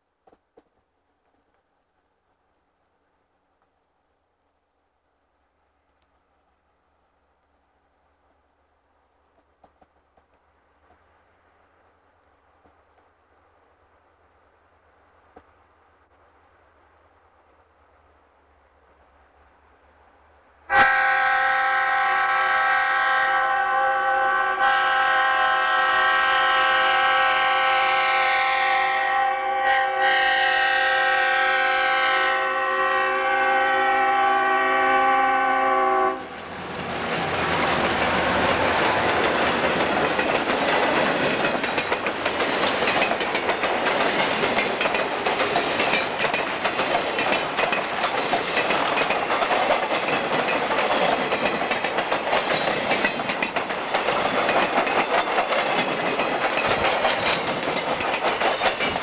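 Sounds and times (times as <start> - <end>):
locomotive air horn blast: 20.7 - 36.3
freight cars rumbling past: 36.2 - 59.0.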